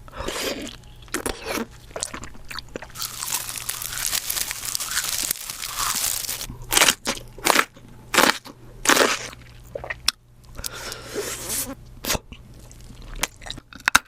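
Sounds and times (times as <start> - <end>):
crunchy food being eaten: 0.1 - 10.8, 11.4 - 14.0.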